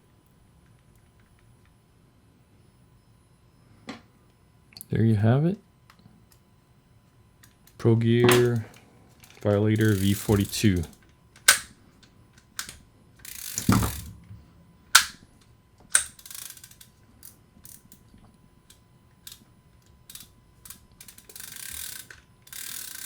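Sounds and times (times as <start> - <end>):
fishing reel handle clicking: 7.7 - 11.7, 12.4 - 14.1, 15.9 - 18.0, 20.1 - 23.0.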